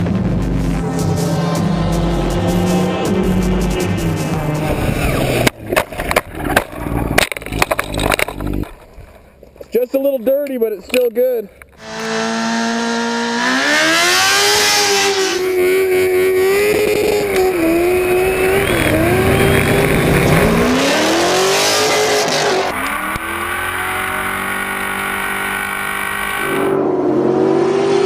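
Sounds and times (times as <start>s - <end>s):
engine revving high: 0.0s - 5.5s, 11.8s - 28.0s.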